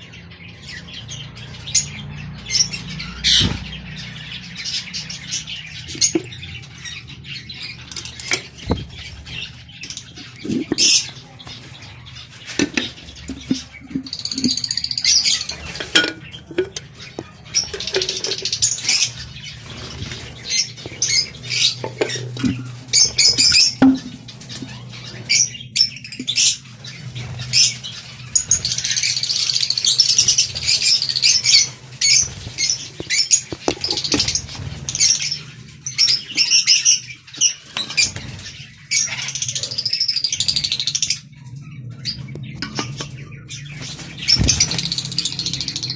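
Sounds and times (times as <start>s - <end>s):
lovebirds chirping and squawking: 0.0s - 45.9s
clicks and rustles: 7.9s - 24.8s, 31.7s - 34.9s.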